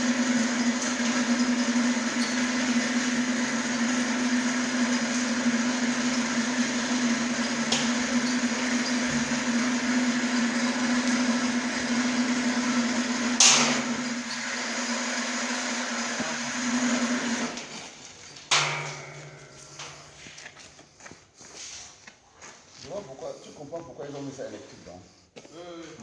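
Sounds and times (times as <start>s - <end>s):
machinery motor hum: 0.0s - 20.6s
sharp clack: 13.4s - 14.0s, 18.5s - 20.1s.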